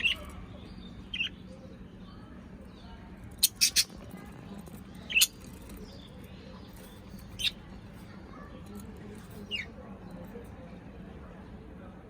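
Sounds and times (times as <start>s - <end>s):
parrot squeaking: 3.4s - 4.0s.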